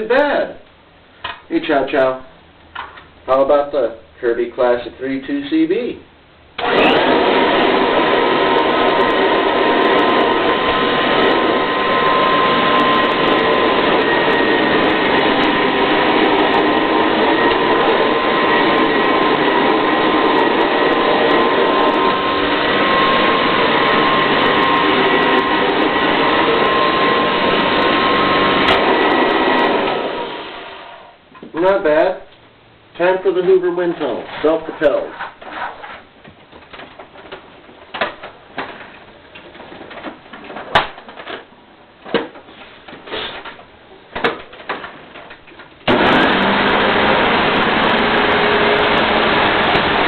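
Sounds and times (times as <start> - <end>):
vacuum cleaner running: 6.6 - 31.2, 45.8 - 50.0.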